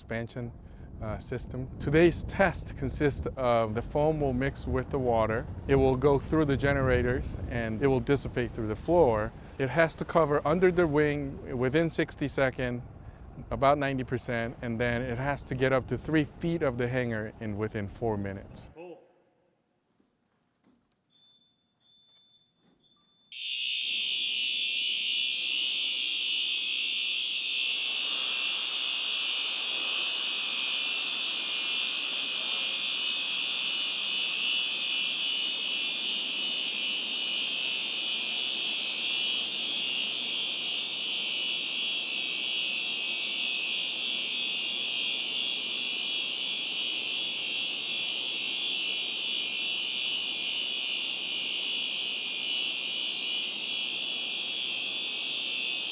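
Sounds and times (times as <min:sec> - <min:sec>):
high-pitched fire alarm tone: 0:21.1 - 0:55.9
steady rushing noise: 0:27.6 - 0:54.8.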